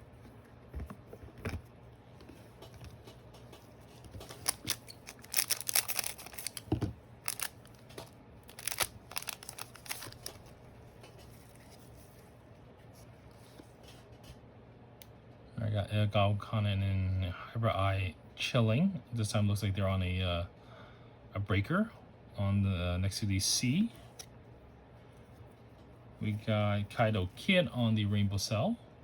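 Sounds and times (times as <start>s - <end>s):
foil packs crinkling and rustling: 4.0s - 10.6s.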